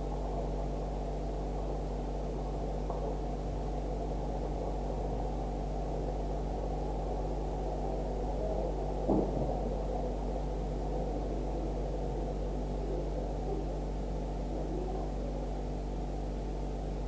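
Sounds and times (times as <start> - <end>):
steady low hum: 0.0 - 17.0
brief knock: 9.1 - 9.6.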